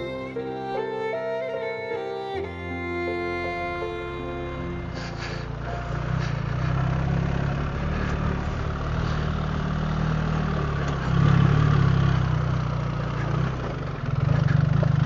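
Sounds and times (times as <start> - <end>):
motorcycle engine running: 4.9 - 15.0.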